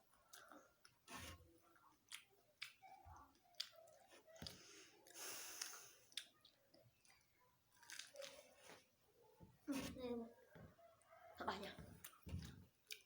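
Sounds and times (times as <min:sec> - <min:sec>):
chewing sweet corn: 0:00.2 - 0:08.9, 0:12.0 - 0:13.0.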